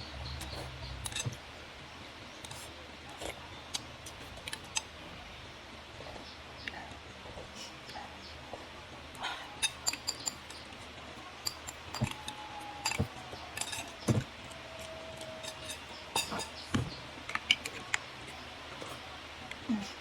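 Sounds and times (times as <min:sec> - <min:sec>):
cutlery clinking on dishware: 0:09.6 - 0:10.7, 0:11.4 - 0:17.9.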